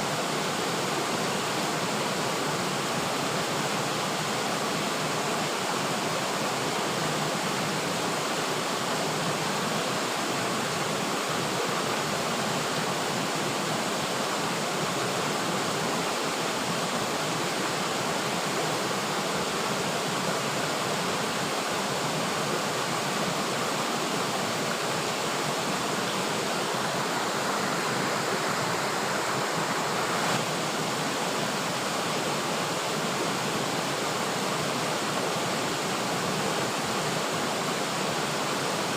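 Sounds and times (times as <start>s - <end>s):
river water flowing over rocks: 0.0s - 38.9s.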